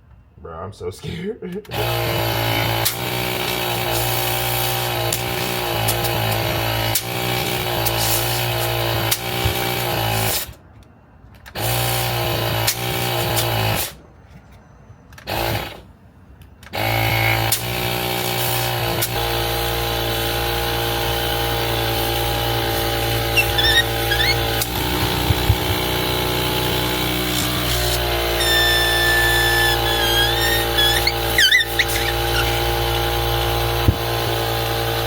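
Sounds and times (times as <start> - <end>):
air compressor humming: 1.7 - 10.4, 17.0 - 35.0
escaping air whistling: 23.2 - 25.2, 27.5 - 32.7.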